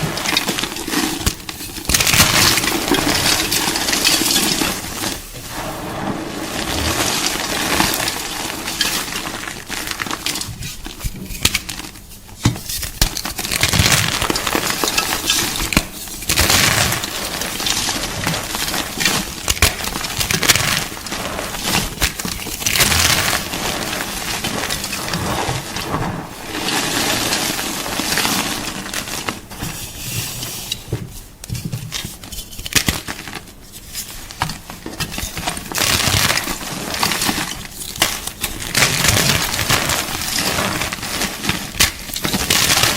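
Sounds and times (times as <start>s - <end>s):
chalk crunching and crumbling: 0.0s - 30.8s.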